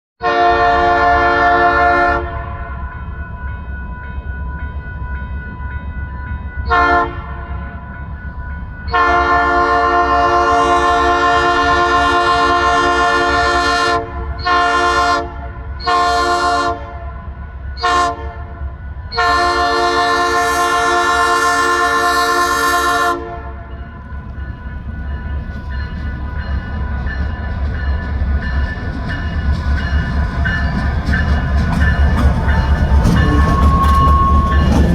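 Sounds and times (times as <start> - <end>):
locomotive air horn blasts: 0.2 - 2.8, 6.7 - 7.5, 8.9 - 23.7, 33.0 - 34.9
low rumble of train: 0.2 - 34.9.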